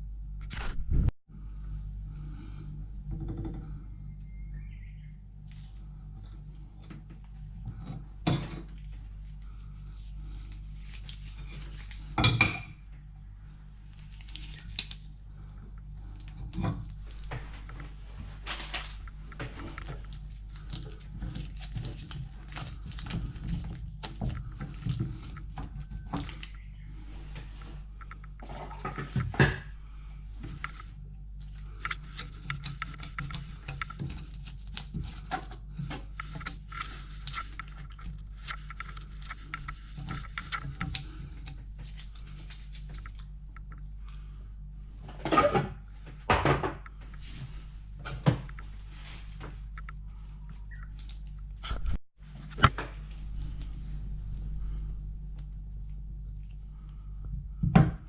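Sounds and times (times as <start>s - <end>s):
steady low hum: 0.0s - 58.0s
scraping and rubbing: 7.4s - 12.2s, 13.9s - 43.3s.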